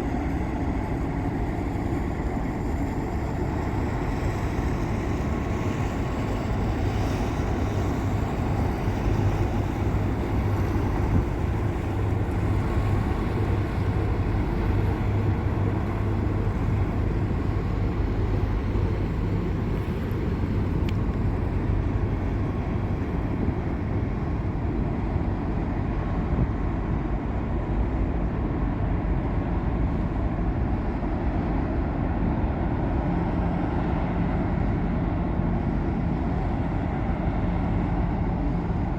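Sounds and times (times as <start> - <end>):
ship engines droning: 0.0 - 38.9.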